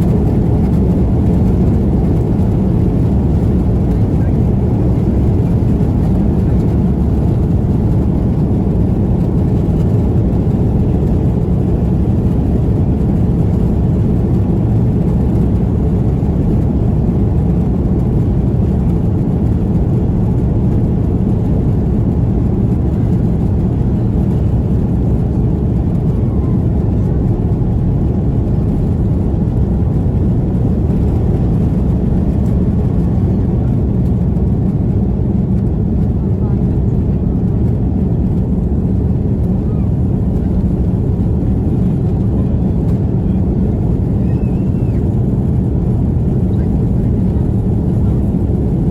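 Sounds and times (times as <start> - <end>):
jet engines rumbling in cabin: 0.0 - 48.9.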